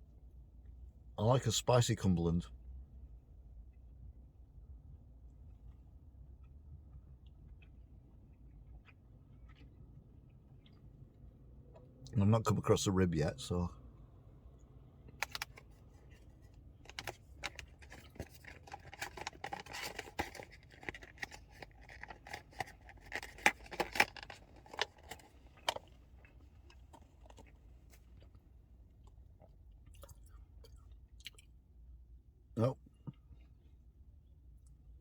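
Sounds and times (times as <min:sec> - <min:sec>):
faint low hum: 0:00.0 - 0:35.0
person chewing crunchy food: 0:06.4 - 0:11.0, 0:16.6 - 0:31.5.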